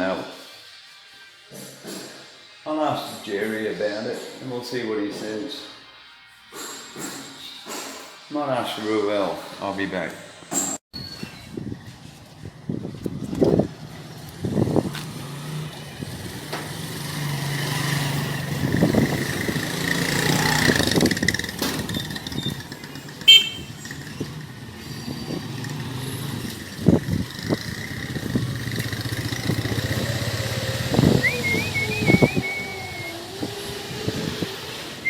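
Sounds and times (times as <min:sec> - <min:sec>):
vehicle engine running: 0:14.1 - 0:24.8, 0:25.4 - 0:34.4.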